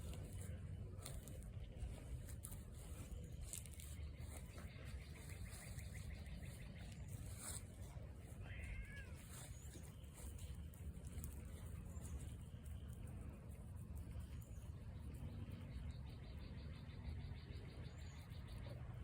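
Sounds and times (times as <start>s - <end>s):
steady low rumble: 0.0s - 19.0s
cat meowing faintly: 8.2s - 9.7s.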